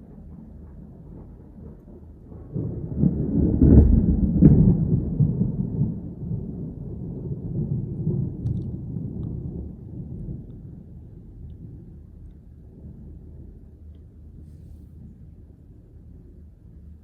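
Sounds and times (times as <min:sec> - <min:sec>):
thunder rumbling and cracking: 0:00.0 - 0:17.0.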